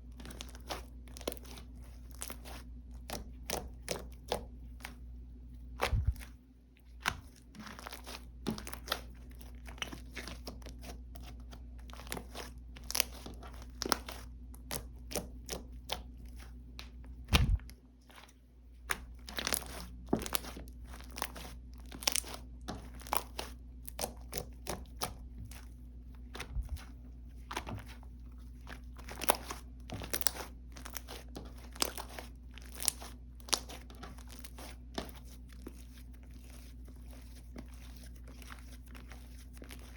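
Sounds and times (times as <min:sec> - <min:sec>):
slime squished by hand: 0:00.0 - 0:39.9.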